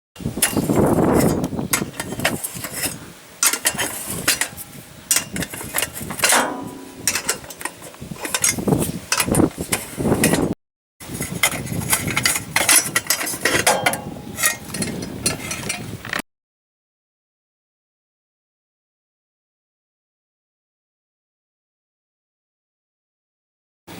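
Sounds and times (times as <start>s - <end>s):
mechanical clicking and clanking: 0.4s - 10.6s.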